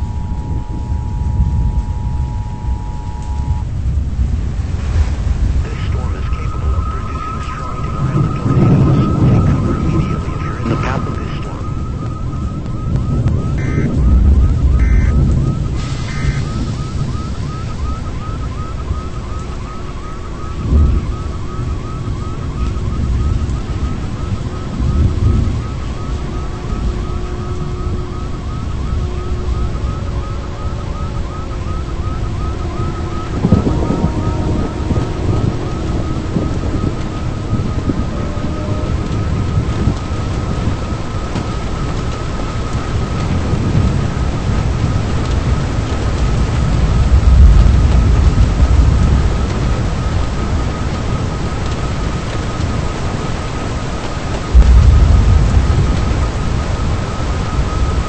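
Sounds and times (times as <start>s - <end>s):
siren-like tones: 0.0s - 58.0s
wind rumble on microphone: 0.0s - 58.0s
high electronic chirp: 6.8s - 16.6s.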